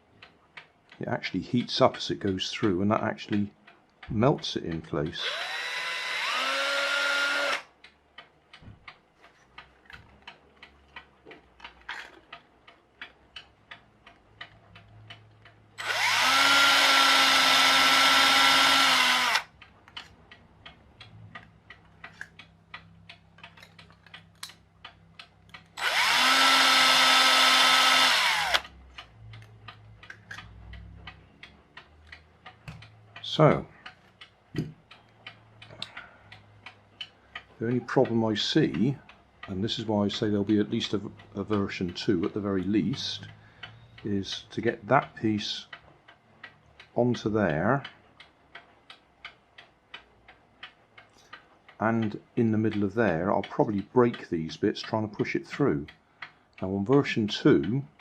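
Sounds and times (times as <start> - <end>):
clock ticking: 0.0 - 58.0
electric drill spinning: 5.2 - 7.6, 15.8 - 19.5, 25.8 - 28.6.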